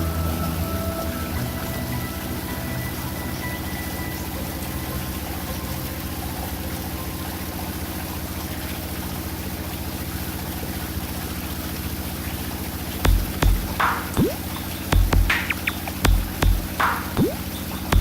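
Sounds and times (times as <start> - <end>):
water noise: 0.0 - 18.0
heavy low thumps: 13.1 - 18.0.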